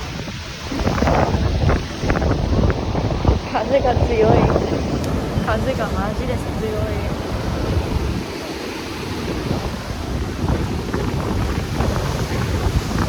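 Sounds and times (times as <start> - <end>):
sea surf washing: 0.0 - 13.0
wind buffeting microphone: 0.0 - 13.0.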